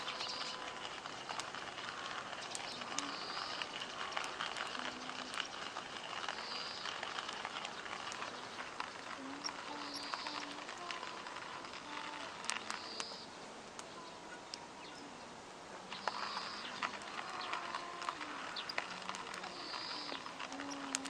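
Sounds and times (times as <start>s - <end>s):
campfire crackling and popping: 0.0s - 14.7s, 15.6s - 21.0s
low hiss of burning: 0.0s - 21.0s
faint short tonal calls: 15.9s - 21.0s.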